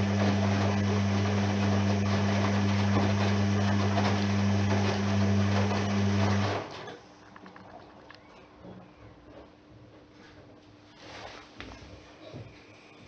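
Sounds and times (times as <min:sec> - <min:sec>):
washing machine running: 0:00.0 - 0:08.2.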